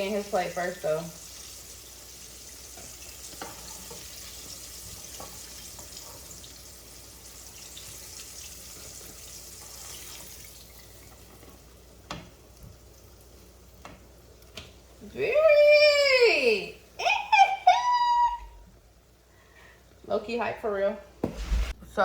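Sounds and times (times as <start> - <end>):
oil sizzling in a frying pan: 0.0 - 17.0.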